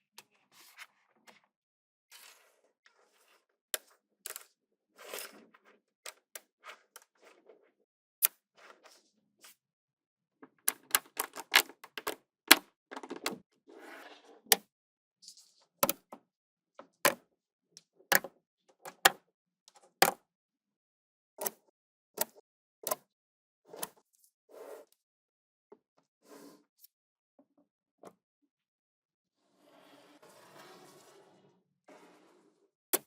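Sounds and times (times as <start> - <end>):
balls rattling: 12.9 - 13.4.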